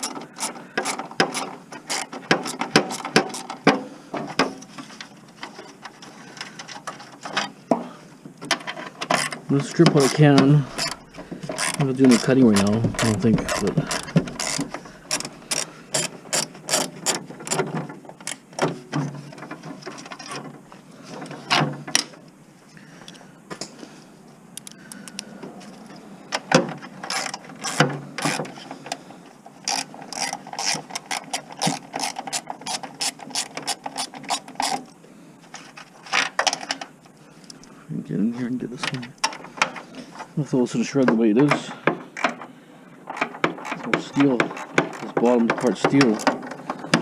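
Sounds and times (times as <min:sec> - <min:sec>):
hand tools clanking on metal: 0:08.5 - 0:20.5, 0:41.0 - 0:42.5, 0:43.1 - 0:47.0.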